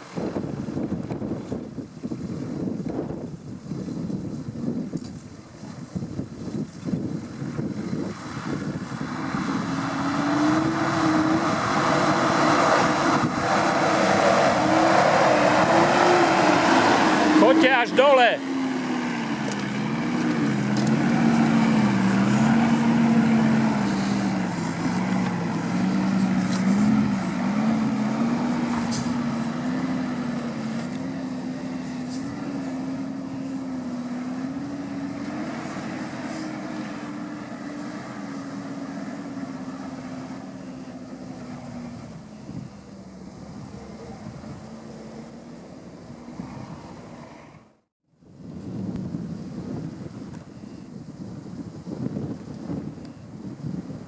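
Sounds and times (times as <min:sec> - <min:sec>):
off-road vehicle engine revving: 0:07.0 - 0:47.7.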